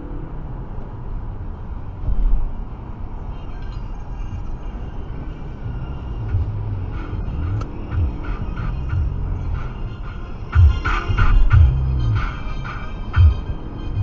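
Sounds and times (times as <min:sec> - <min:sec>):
car road and engine noise: 0:00.0 - 0:14.0
music with bass beat: 0:05.7 - 0:14.0.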